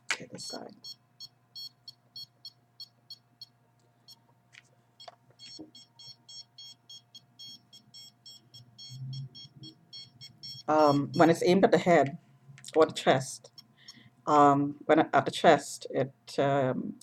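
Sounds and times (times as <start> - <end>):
signal detector beeping: 0.8 - 3.5, 5.0 - 11.6, 13.2 - 14.1.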